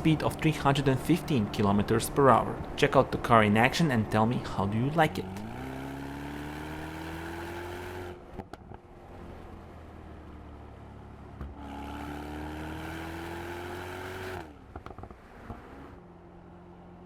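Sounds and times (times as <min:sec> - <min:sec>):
car engine accelerating: 0:04.4 - 0:17.0
exhaust pops and crackles: 0:08.3 - 0:08.9, 0:14.7 - 0:15.2.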